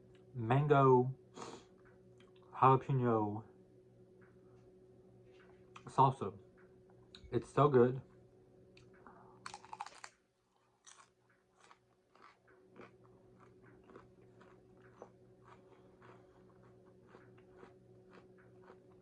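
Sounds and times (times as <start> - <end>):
biting into crunchy taco: 8.8 - 19.0
chewing with crunches: 8.8 - 19.0.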